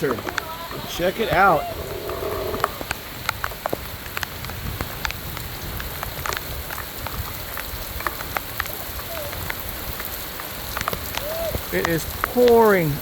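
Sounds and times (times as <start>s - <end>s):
heavy rain pouring: 0.0s - 13.0s
raindrops ticking close by: 0.0s - 13.0s.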